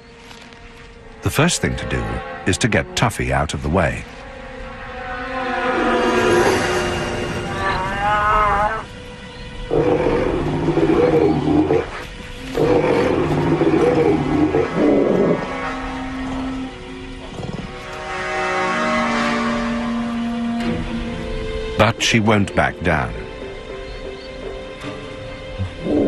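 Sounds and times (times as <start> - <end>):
background music: 0.0 - 26.0
bears roaring: 5.4 - 8.8, 9.7 - 16.6, 25.6 - 26.0.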